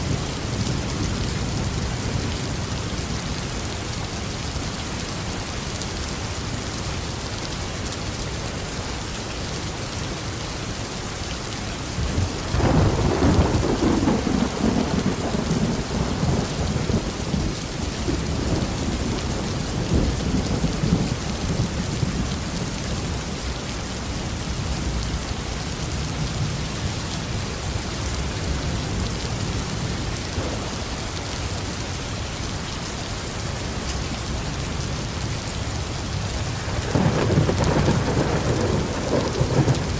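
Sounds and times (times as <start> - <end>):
heavy rain: 0.0 - 39.9
thunder rumbling: 12.0 - 22.9, 28.1 - 31.9, 36.4 - 39.9.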